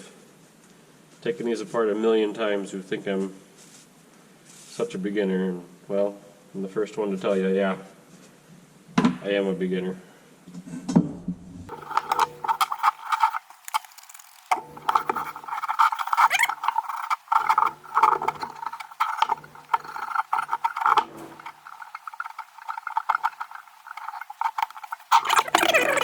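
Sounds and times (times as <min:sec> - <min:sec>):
metal parts rattling and scraping: 0:11.7 - 0:26.0.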